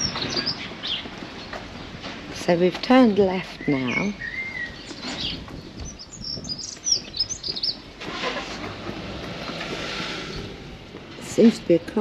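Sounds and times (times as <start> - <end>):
songbird chirping: 0.0 - 8.4.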